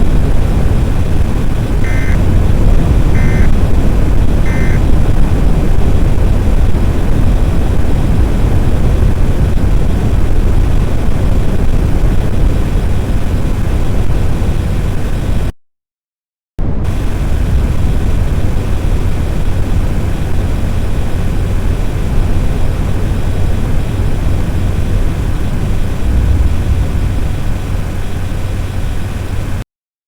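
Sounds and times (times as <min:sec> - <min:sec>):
loud low rumble: 0:00.0 - 0:15.4, 0:19.8 - 0:29.6
short electronic beeps: 0:01.8 - 0:02.2, 0:03.2 - 0:03.5, 0:04.5 - 0:04.8.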